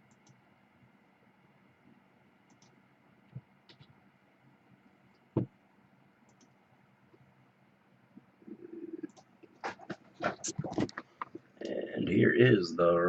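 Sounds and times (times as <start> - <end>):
faint computer clicks: 2.5 - 4.0, 6.3 - 6.6, 9.0 - 9.3.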